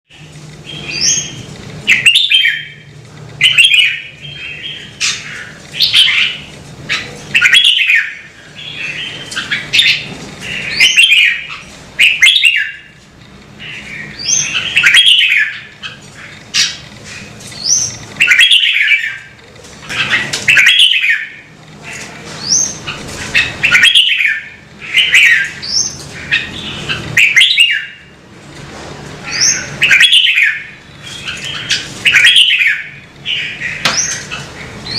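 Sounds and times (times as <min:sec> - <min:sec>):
bird singing whistled phrases: 0:10.7 - 0:12.8.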